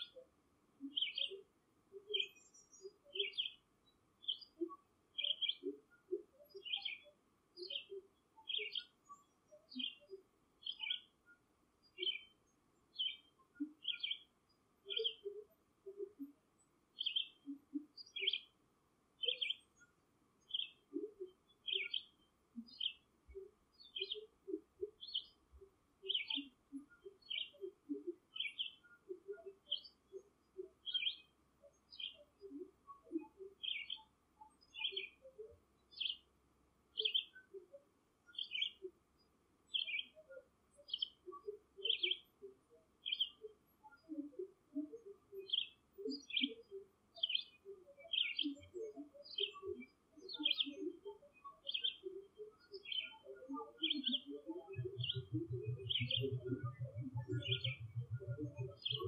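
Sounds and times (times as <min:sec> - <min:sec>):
bird chirping: 0:00.0 - 0:18.6, 0:19.2 - 0:59.0
soft low bird notes: 0:54.7 - 0:59.0.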